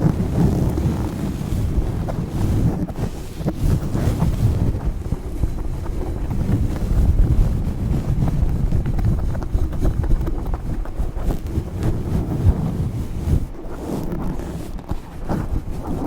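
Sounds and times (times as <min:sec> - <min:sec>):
scratching on a microphone: 0:00.0 - 0:16.0.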